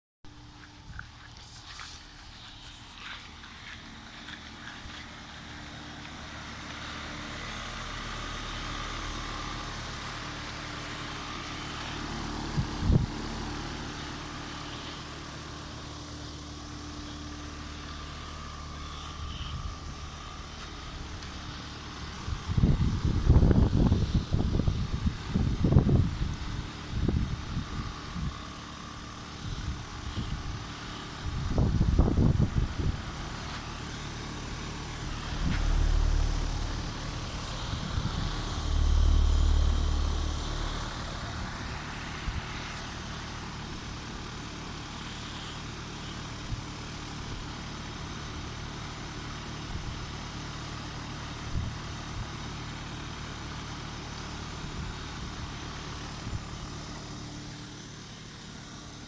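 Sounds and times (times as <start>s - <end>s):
heat pump humming: 0.3s - 49.5s
low rumbles: 31.3s - 43.9s.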